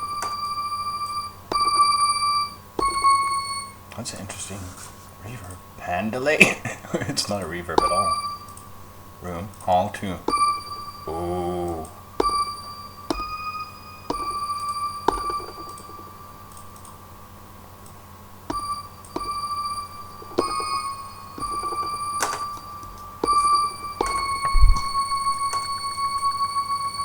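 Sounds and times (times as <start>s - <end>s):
bell-like synth notes: 0.0s - 3.9s, 7.7s - 8.7s, 10.2s - 17.1s, 18.5s - 27.0s
drum pad taps: 1.5s - 3.5s, 7.7s - 8.8s, 9.6s - 16.9s, 18.4s - 26.5s.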